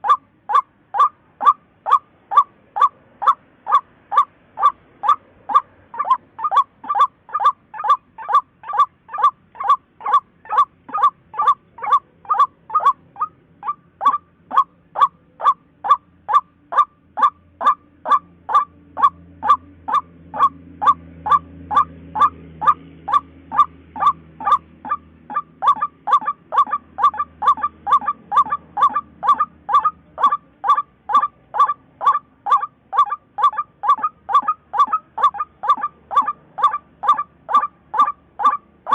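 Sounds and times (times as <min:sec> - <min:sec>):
waterhen calling short notes: 0:00.0 - 0:38.9.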